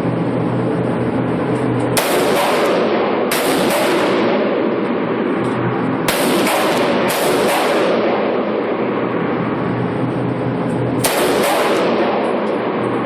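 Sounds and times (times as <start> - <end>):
steady rushing background noise: 0.0 - 13.0
gunshots with echo: 1.9 - 9.4, 11.0 - 13.0.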